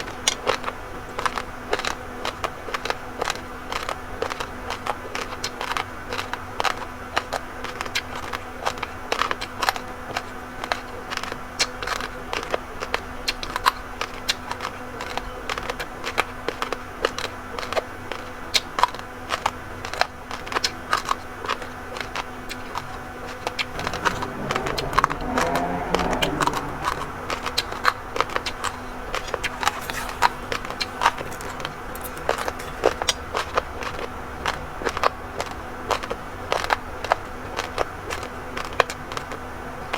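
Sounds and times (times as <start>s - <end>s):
chewing raw rice: 0.0s - 39.9s
brief rising and falling tone: 23.7s - 27.9s.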